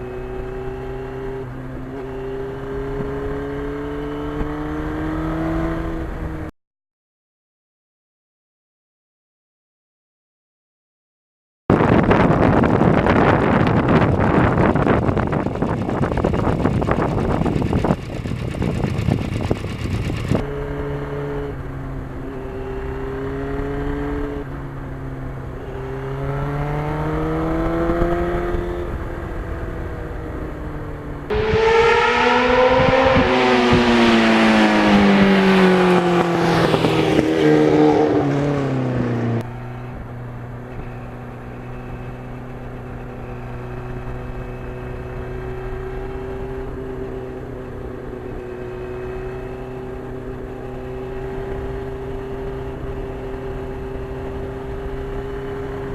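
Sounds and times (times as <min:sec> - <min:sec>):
wind buffeting microphone: 0:11.7 - 0:21.0, 0:26.4 - 0:39.4
motorcycle engine running: 0:11.7 - 0:55.9.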